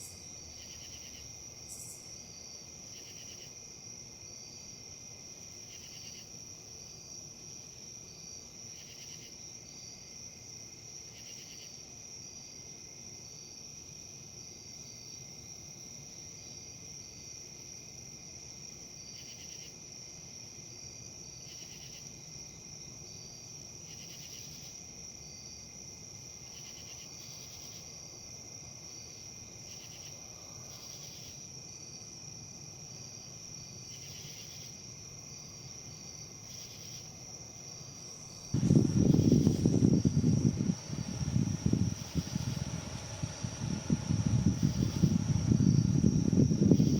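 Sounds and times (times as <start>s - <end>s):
insect high trill: 0.0s - 2.2s
short buzzy insect calls: 0.0s - 2.2s, 37.8s - 46.9s
insect pulsing call: 0.0s - 3.6s, 33.8s - 46.9s
wind rustling leaves: 37.6s - 46.9s.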